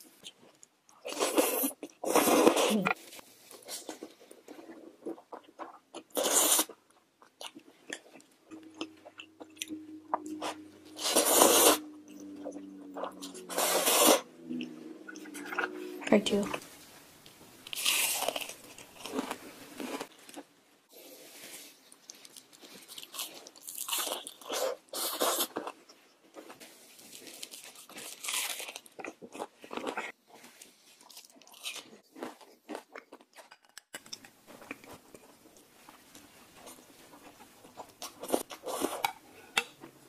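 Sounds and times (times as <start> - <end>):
crunching and chewing food: 0.0 - 40.0.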